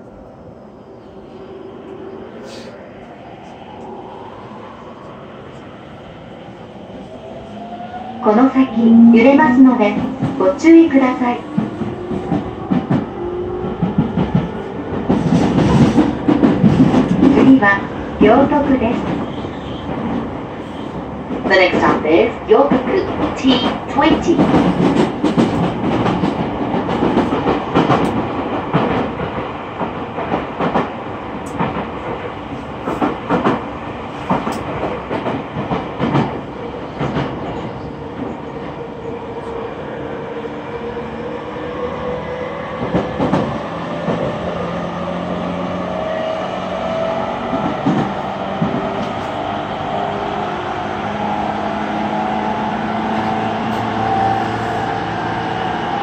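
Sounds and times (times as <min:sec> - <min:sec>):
train interior hum: 0:00.0 - 0:56.0
train wheels clicking over joints: 0:22.7 - 0:38.4.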